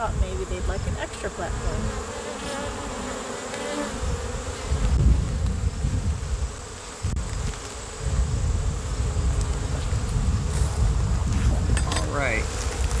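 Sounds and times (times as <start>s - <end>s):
honey bees buzzing: 0.0s - 13.0s.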